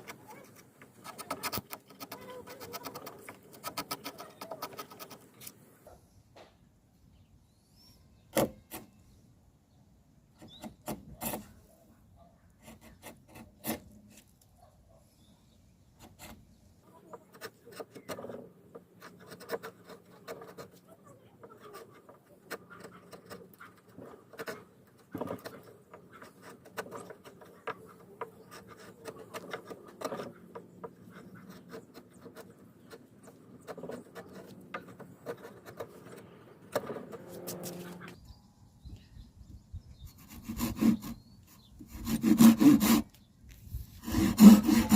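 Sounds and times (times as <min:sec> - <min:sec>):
wood rubbing and scraping: 0:00.0 - 0:05.6, 0:10.4 - 0:11.8, 0:12.6 - 0:14.4, 0:16.0 - 0:38.2, 0:40.1 - 0:44.9.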